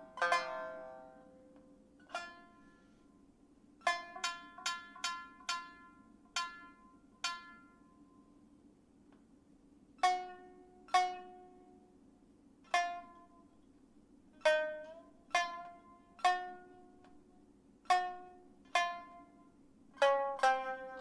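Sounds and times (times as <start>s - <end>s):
plucked string instrument notes: 0.0s - 2.8s, 14.4s - 17.2s, 17.9s - 21.0s.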